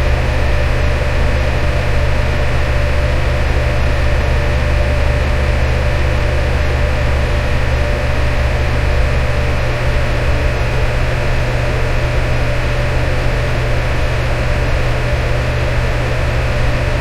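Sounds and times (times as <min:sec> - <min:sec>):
electric fan running: 0:00.0 - 0:17.0.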